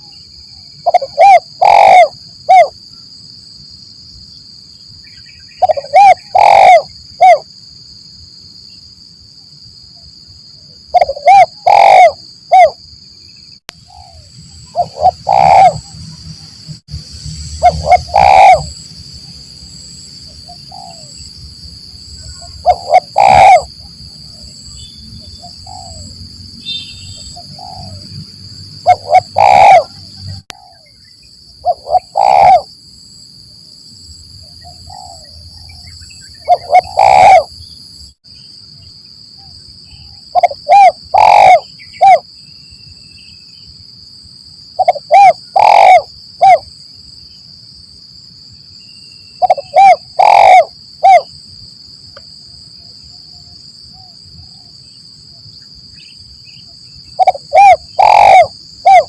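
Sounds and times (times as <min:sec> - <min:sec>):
high-pitched insect tone: 0:00.0 - 0:59.0
dove cooing: 0:00.8 - 0:02.7, 0:05.6 - 0:07.4, 0:10.9 - 0:12.8, 0:13.8 - 0:16.0, 0:17.6 - 0:18.8, 0:20.5 - 0:21.2, 0:22.2 - 0:24.4, 0:25.5 - 0:26.2, 0:27.3 - 0:28.0, 0:28.8 - 0:30.9, 0:31.6 - 0:32.7, 0:34.7 - 0:35.3, 0:36.4 - 0:37.5, 0:40.3 - 0:42.2, 0:44.8 - 0:46.6, 0:49.4 - 0:51.3, 0:57.2 - 0:59.0.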